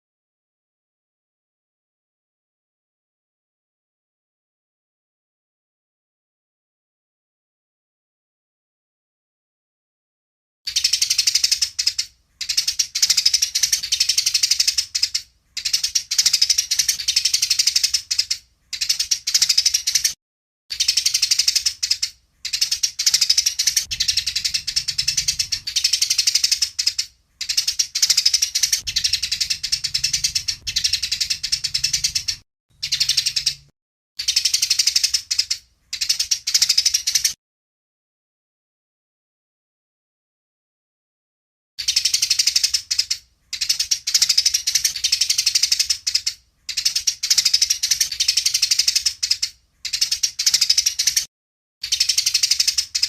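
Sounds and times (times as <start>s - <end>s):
sparrows chattering: 10.7s - 37.4s, 41.8s - 53.0s.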